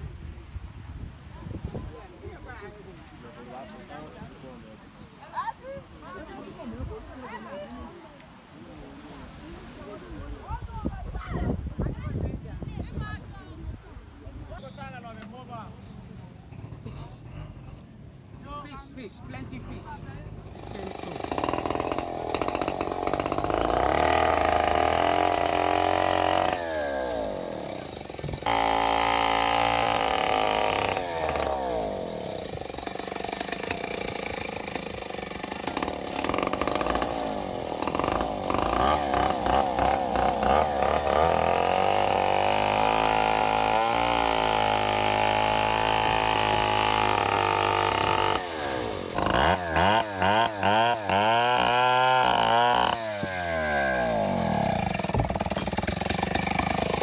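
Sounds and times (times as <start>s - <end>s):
chainsaw running and revving: 15.6s - 18.4s, 19.0s - 57.0s.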